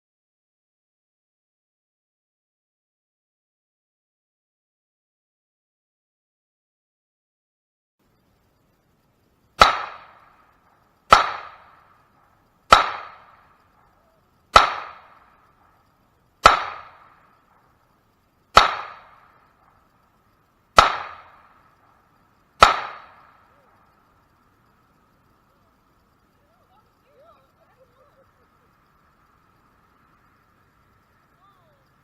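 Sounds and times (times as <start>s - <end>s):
pistol shots echoing: 9.6s - 10.5s, 11.1s - 17.8s, 18.5s - 19.8s, 20.8s - 22.0s, 22.6s - 24.0s.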